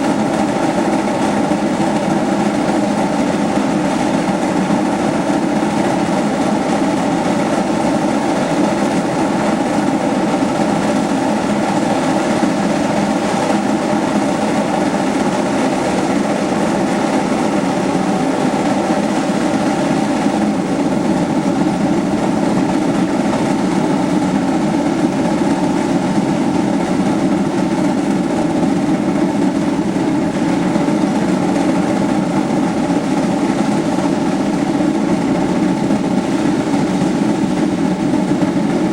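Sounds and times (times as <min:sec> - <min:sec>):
steam locomotive running: 0:00.0 - 0:38.9.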